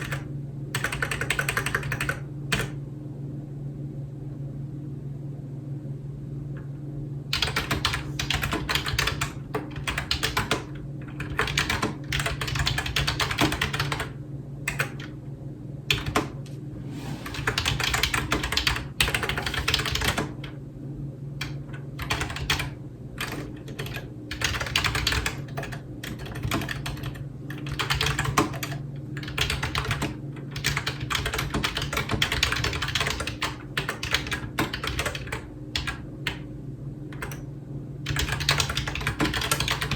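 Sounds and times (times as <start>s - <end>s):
keyboard typing: 0.0s - 2.8s, 7.4s - 14.1s, 14.7s - 15.1s, 15.9s - 16.4s, 17.0s - 20.5s, 21.4s - 36.4s, 37.2s - 37.5s, 38.1s - 39.9s
steady low hum: 0.0s - 39.9s.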